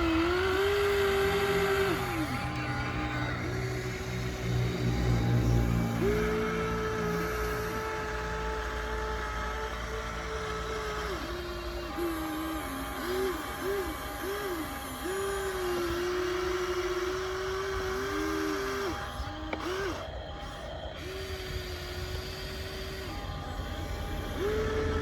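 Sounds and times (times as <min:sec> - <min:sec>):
small electric motors whining: 0:00.0 - 0:25.0.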